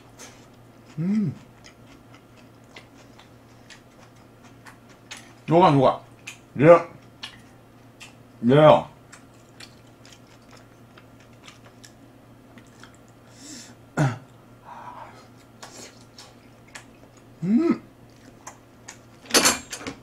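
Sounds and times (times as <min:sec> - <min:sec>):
chewing and mouth noises: 0:00.0 - 0:05.5, 0:06.1 - 0:08.4, 0:09.0 - 0:13.3, 0:15.3 - 0:19.2
throaty vocal sound: 0:01.0 - 0:01.4, 0:17.4 - 0:17.9.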